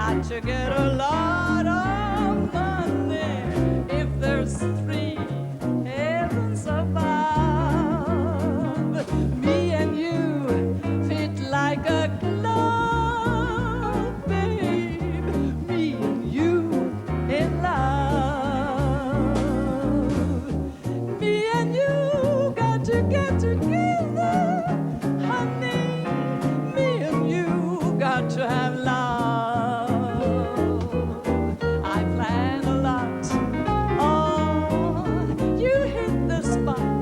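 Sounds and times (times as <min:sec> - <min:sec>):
swing jazz band playing: 0:00.0 - 0:37.0
walking bass line: 0:00.0 - 0:37.0.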